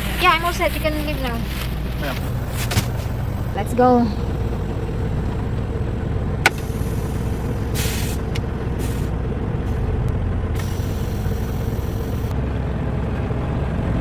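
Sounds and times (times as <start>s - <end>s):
truck engine low rumble: 0.0s - 14.0s
air hissing: 6.4s - 9.9s, 10.6s - 12.3s.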